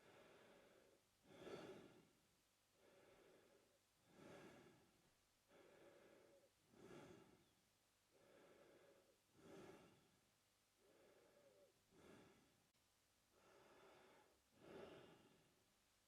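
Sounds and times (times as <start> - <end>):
man breathing through mouth: 0.0 - 2.0, 2.8 - 4.9, 5.5 - 7.5, 8.1 - 10.1, 10.8 - 12.5, 13.4 - 15.4.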